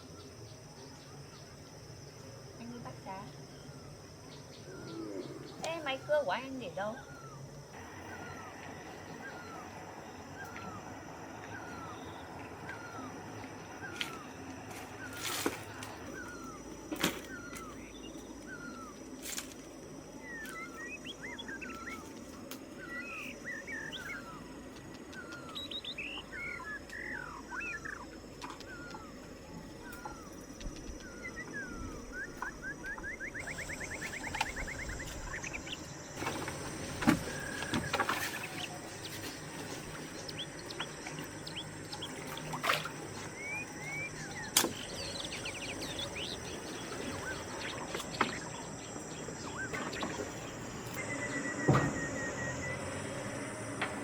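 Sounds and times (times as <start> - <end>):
small birds chirping: 0.0 - 53.6
high insect drone: 0.0 - 54.0
rapid bird trill: 25.2 - 52.9.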